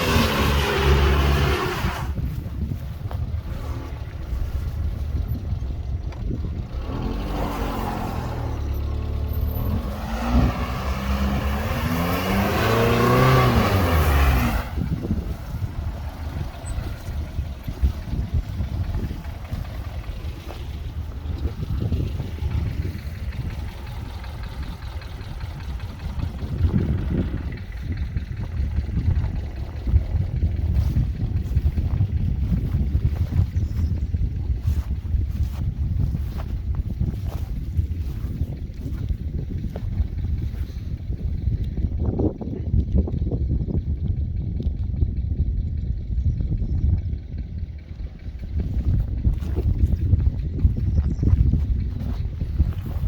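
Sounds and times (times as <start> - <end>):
car engine revving hard: 0.0 - 2.2, 6.7 - 17.9
wheels spinning in wet grass: 0.0 - 42.0, 47.8 - 53.0
car engine low rumble: 0.0 - 53.0.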